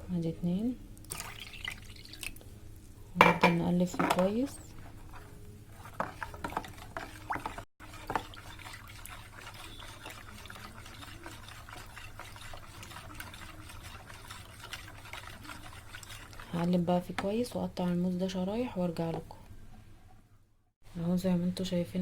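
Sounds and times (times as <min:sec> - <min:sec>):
spoon stirring liquid in a bowl: 0:03.2 - 0:19.3.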